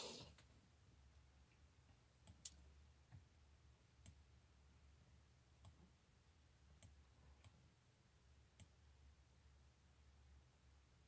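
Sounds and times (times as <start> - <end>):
computer mouse clicks: 2.2 - 2.6, 5.6 - 5.9.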